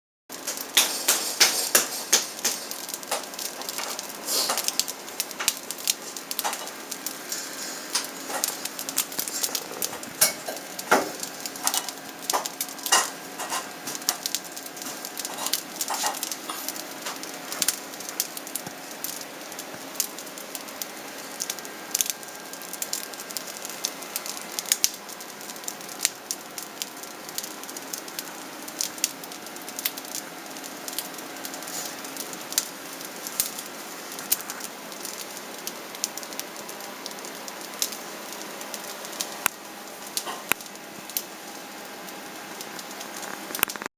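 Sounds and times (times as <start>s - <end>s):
bread crust crackling clicks: 0.3s - 43.9s.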